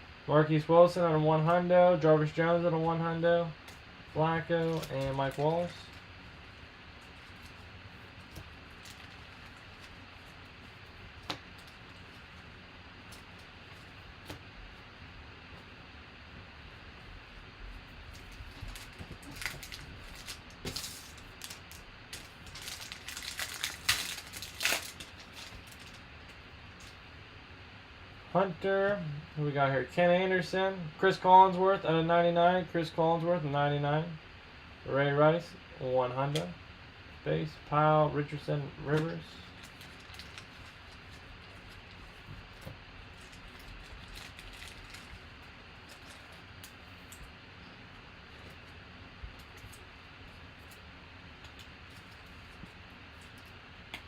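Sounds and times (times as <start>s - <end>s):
foil wrapper crinkling: 3.6s - 6.1s, 7.0s - 14.0s, 18.1s - 27.0s, 39.0s - 47.2s
cards being handled: 4.6s - 6.0s.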